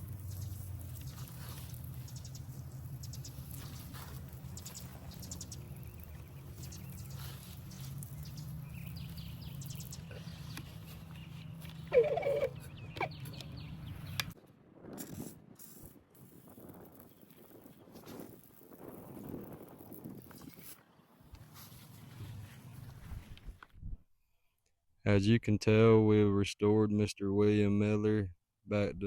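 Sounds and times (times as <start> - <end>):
low outdoor rumble: 0.0 - 14.8
loud animal call: 11.9 - 13.2.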